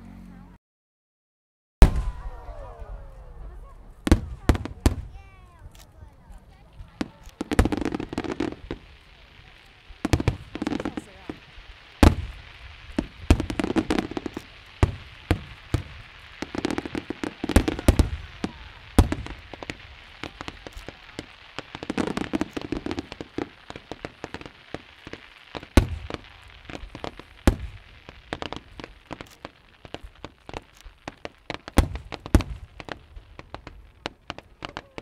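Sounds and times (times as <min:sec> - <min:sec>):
fireworks bangs and crackles: 0:01.8 - 0:35.0
fireworks booms: 0:01.8 - 0:35.0.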